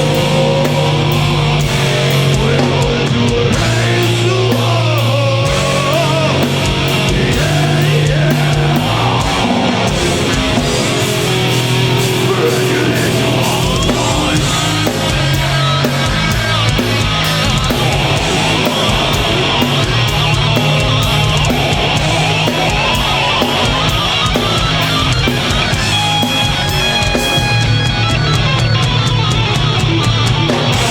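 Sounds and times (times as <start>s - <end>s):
bass guitar: 0.0s - 30.9s
distorted guitars: 0.0s - 30.9s
fast drumming: 0.0s - 30.9s.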